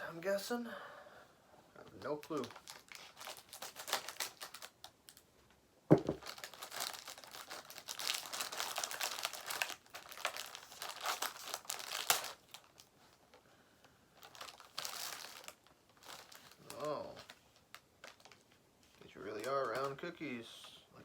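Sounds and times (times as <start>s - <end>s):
packaging crinkling: 2.1s - 5.2s, 5.9s - 12.9s, 14.2s - 18.6s
sharp knock: 5.9s - 6.2s.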